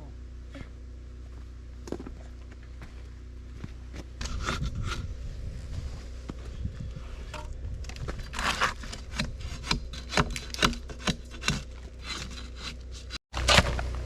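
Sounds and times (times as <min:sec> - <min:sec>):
steady low hum: 0:00.0 - 0:14.0
rasping strokes on wood: 0:08.3 - 0:13.2.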